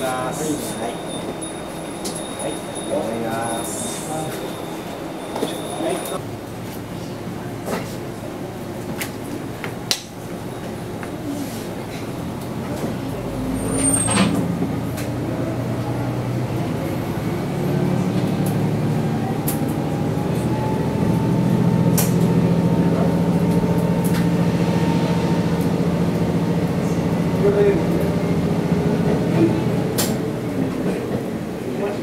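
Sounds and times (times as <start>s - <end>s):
diesel engine drone: 0.0s - 32.0s
faint rising whine: 17.5s - 28.8s.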